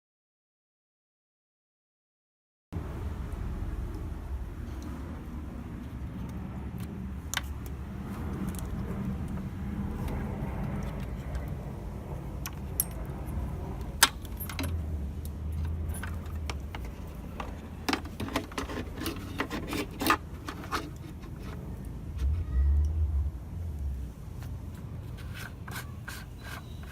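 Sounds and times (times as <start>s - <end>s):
steady low hum: 2.8s - 25.7s
light metallic clinks and rattles: 12.4s - 21.4s.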